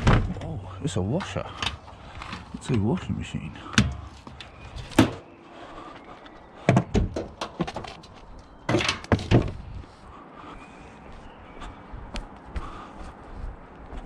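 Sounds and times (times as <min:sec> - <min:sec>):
knocks and clatters of van doors: 0:00.0 - 0:00.4, 0:06.6 - 0:08.0, 0:08.7 - 0:09.6
van door thunk: 0:00.0 - 0:00.5, 0:03.7 - 0:05.2, 0:06.7 - 0:07.9, 0:08.7 - 0:09.6.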